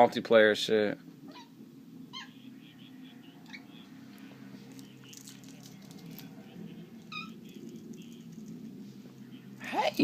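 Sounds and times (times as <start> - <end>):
steady low hum: 0.0 - 10.0
cat chirp: 1.3 - 2.5, 4.7 - 7.6
faint clicks and rustles: 4.0 - 9.3.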